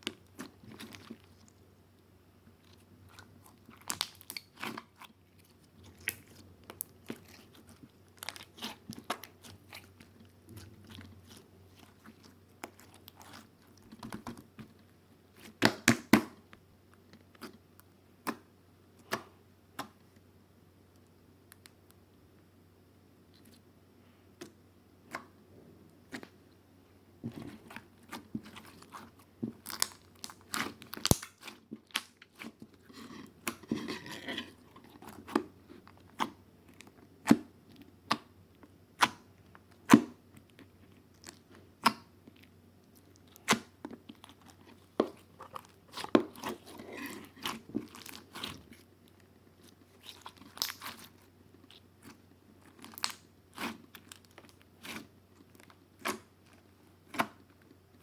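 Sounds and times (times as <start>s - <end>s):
crisp crunching and crackling: 2.6s - 15.6s, 27.3s - 38.2s, 39.0s - 58.0s.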